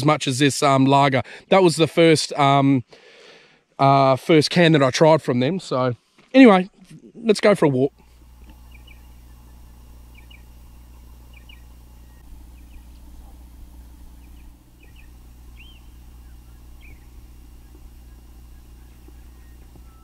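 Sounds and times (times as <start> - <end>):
low hum: 7.9 - 20.0
birds chirping: 8.0 - 20.0
rising and falling bird call: 8.6 - 20.0.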